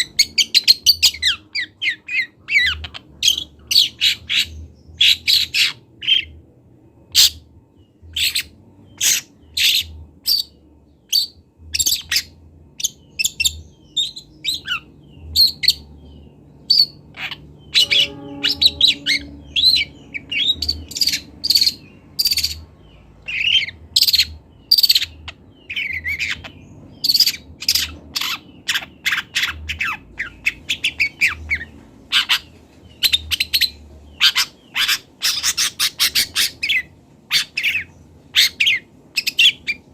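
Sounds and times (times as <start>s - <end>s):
shrike chirps and squawks: 0.0s - 6.4s, 8.0s - 15.9s, 16.7s - 39.9s.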